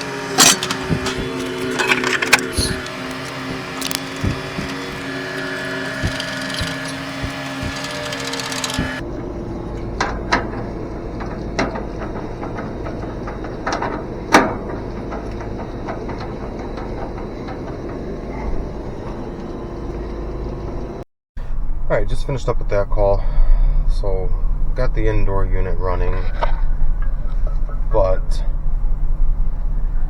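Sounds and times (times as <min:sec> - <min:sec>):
mechanical clicks and knocks: 0:00.0 - 0:20.0
low dull hum: 0:00.0 - 0:30.0
machine hum with held tones: 0:00.0 - 0:30.0.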